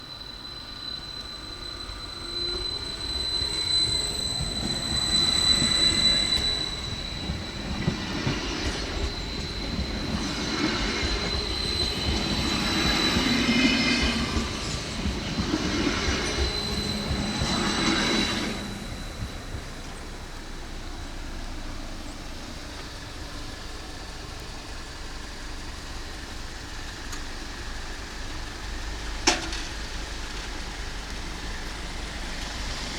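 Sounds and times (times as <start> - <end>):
high-pitched wheel squeal: 0.0 - 21.6
train wheels rumbling on rails: 0.0 - 32.9.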